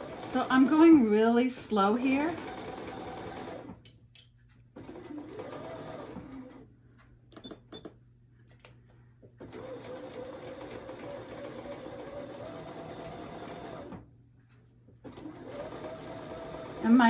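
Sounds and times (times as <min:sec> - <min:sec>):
sewing machine stitching: 0:00.0 - 0:03.8, 0:04.8 - 0:06.6, 0:09.4 - 0:14.0, 0:15.0 - 0:17.0.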